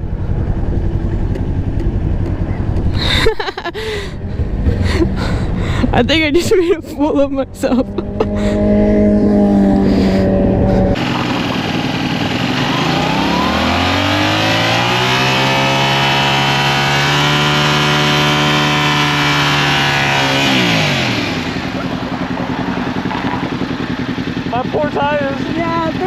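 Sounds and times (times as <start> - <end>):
motorcycle engine revving: 3.9 - 6.3, 7.0 - 26.0
wind noise: 4.1 - 11.6.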